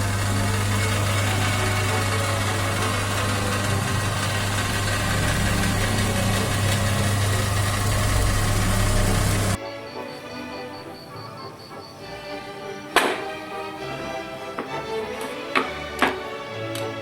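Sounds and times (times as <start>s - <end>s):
electric power tool running: 0.0s - 9.6s
faint music: 0.0s - 17.0s.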